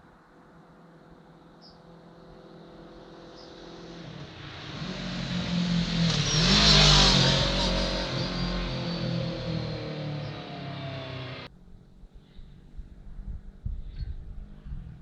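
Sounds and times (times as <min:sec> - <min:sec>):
motorcycle passing by: 0:01.9 - 0:12.1.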